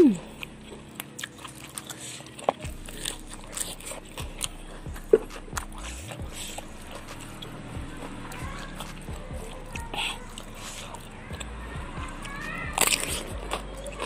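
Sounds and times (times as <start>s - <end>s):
chewing and crunching leaves: 0.0s - 14.0s.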